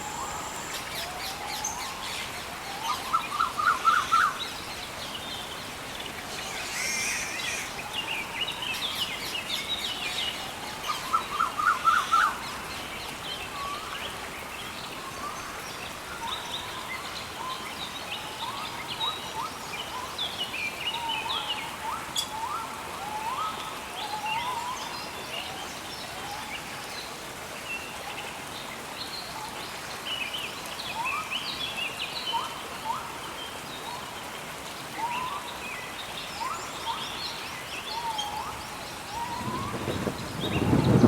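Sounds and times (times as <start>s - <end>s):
steady hiss: 0.0s - 2.5s.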